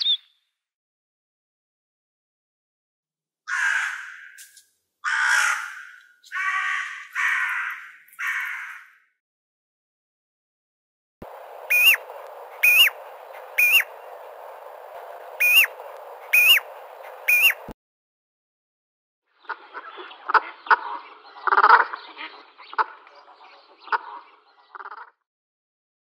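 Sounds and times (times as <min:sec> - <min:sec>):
bird calls rising and falling: 0:11.2 - 0:17.7
quick chirps and clicks: 0:11.2 - 0:17.7
steady hiss: 0:11.2 - 0:17.7.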